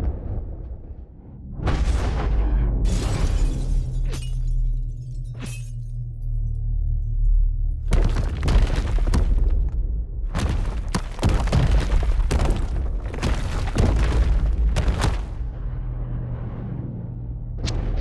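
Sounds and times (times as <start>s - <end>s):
deep rumble: 7.3s - 18.0s
crashes and debris impacts: 7.8s - 15.8s.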